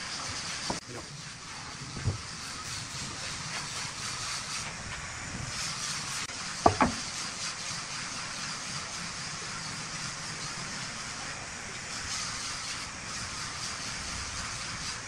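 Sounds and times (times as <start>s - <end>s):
wood lathe hissing: 0.0s - 15.0s
sharp knocks: 6.6s - 7.1s.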